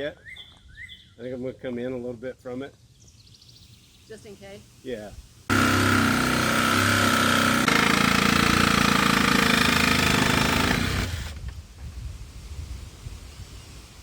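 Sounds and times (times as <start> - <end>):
reciprocating saw cutting metal: 5.5 - 11.4.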